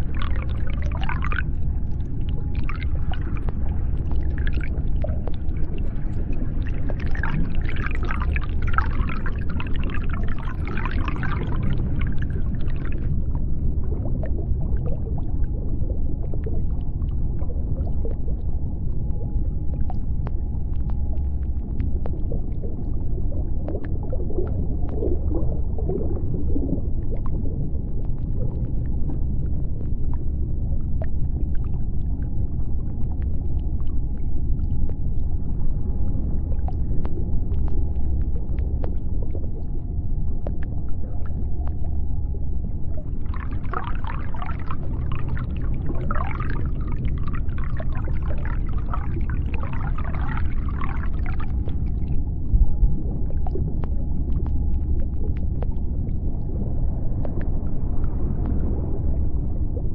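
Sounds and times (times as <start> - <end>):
deep underwater rumble: 0.0 - 59.9
faint steady hum: 0.0 - 59.9
warbling gurgling sound: 0.0 - 59.9
underwater clicks: 33.0 - 58.8.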